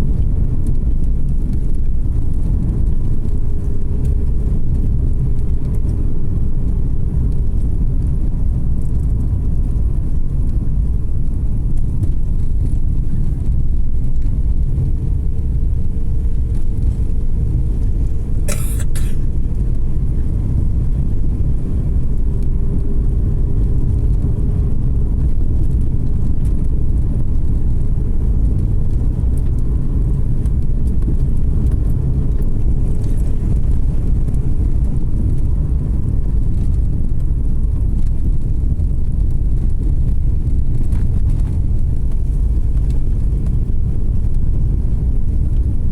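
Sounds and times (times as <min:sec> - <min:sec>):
car engine and tyre rumble: 0:00.0 - 0:45.9.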